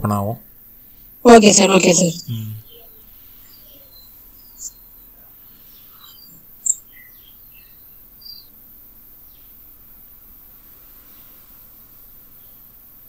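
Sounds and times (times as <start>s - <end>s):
steady background hiss: 0.0s - 13.0s
high-pitched bird chirps: 1.3s - 8.5s.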